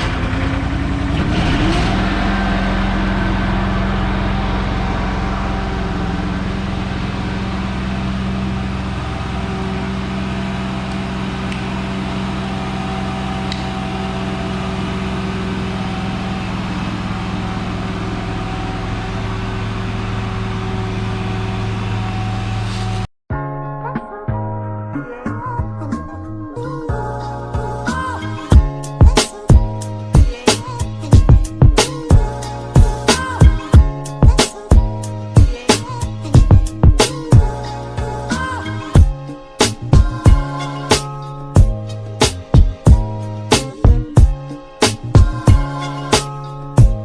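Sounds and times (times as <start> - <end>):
carpet cleaning machine running: 0.0 - 22.6.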